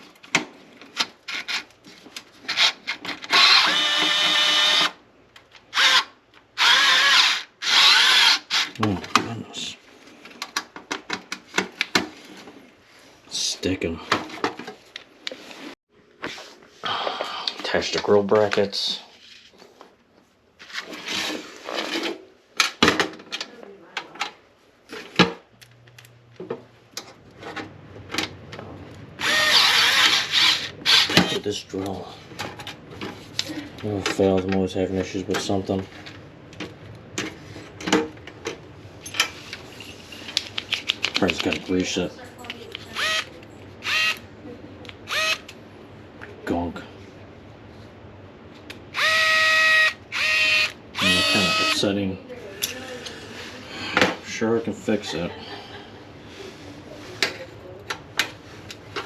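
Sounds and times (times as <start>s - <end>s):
cordless drill whining: 3.3s - 5.0s, 5.7s - 8.7s, 29.2s - 31.3s, 43.0s - 43.2s, 43.8s - 44.2s, 45.1s - 45.4s, 49.0s - 51.8s.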